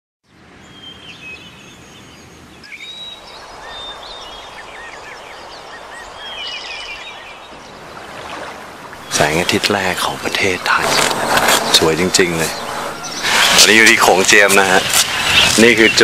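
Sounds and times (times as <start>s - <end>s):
steady background hiss: 1.1s - 16.0s
birds chirping and calling: 2.6s - 8.1s, 8.9s - 16.0s.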